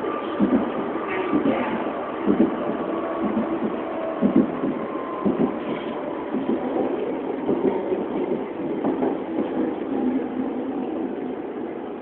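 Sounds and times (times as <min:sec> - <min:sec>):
train wheels on track: 0:00.0 - 0:12.0
knocks and thuds from track: 0:00.4 - 0:09.7.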